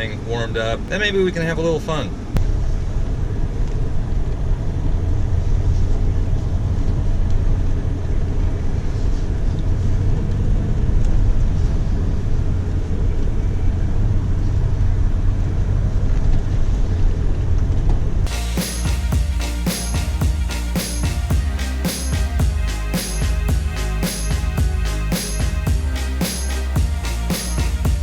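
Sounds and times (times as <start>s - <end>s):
road noise: 0.0s - 28.0s.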